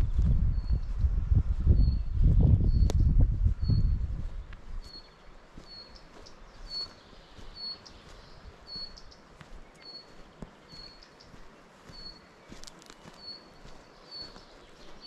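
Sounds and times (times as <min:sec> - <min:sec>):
small bird calling: 0:04.8 - 0:15.0.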